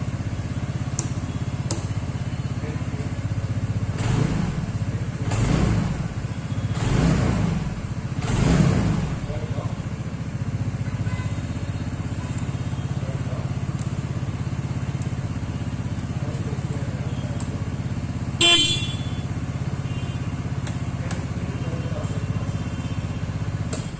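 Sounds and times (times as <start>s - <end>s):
scooter engine idling: 0.0s - 23.9s
horn beep: 18.4s - 20.4s.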